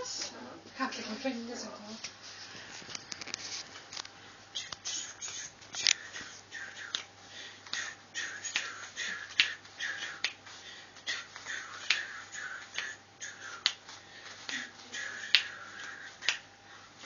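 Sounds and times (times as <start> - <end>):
person snapping fingers: 4.6 - 10.4, 11.0 - 16.5.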